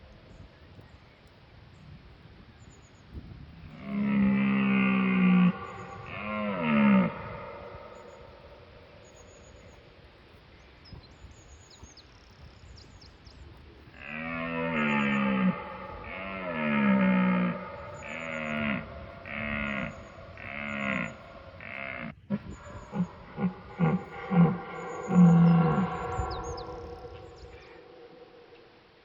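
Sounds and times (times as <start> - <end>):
large animal calling: 3.7 - 9.7, 14.0 - 29.0.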